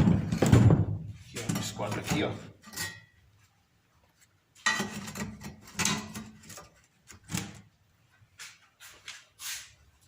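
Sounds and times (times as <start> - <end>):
steel pieces scraping and knocking: 1.3 - 3.2, 4.6 - 6.8.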